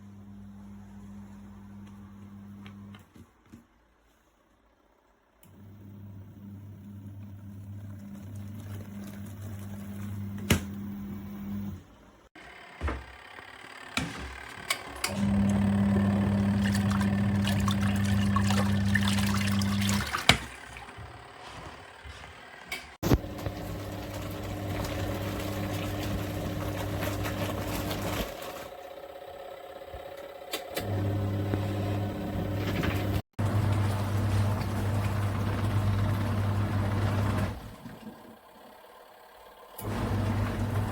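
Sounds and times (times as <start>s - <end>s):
washing machine motor humming: 5.5s - 40.9s
water sloshing and splashing: 15.2s - 21.6s, 23.1s - 28.8s, 32.7s - 38.2s.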